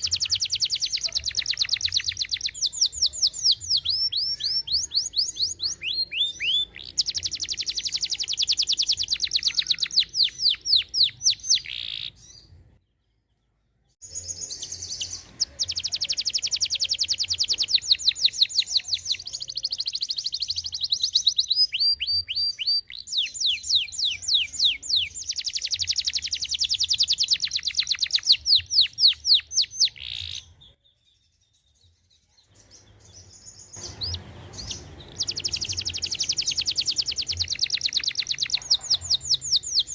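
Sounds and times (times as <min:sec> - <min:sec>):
canary singing trills: 0:00.0 - 0:12.8, 0:14.0 - 0:31.8, 0:32.4 - 0:39.9.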